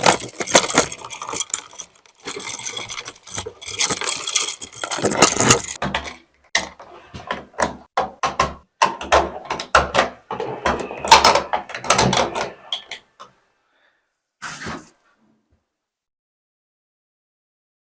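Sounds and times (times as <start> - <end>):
hand tools and metal parts clacking: 0.0 - 8.4
handling noise: 0.0 - 12.7.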